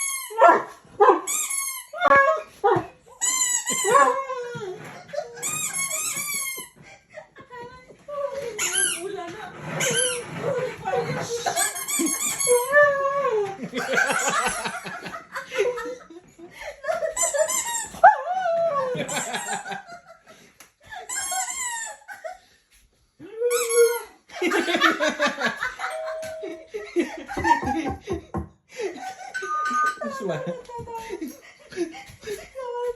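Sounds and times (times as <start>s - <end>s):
squeaky sound: 0.0s - 0.4s, 1.3s - 2.3s, 3.1s - 6.8s, 8.3s - 13.0s, 17.1s - 18.0s, 21.1s - 22.1s, 23.5s - 24.1s, 29.3s - 30.4s
dog whining cries: 0.0s - 6.8s, 9.8s - 14.6s
dog crying and howling: 3.8s - 5.4s.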